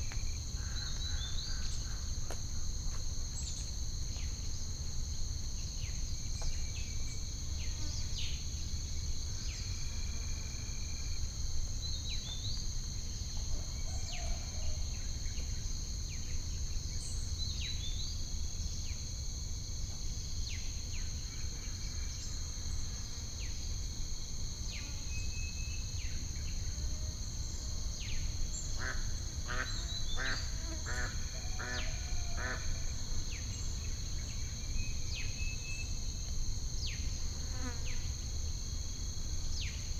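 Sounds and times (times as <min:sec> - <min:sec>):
crickets droning: 0:00.0 - 0:39.9.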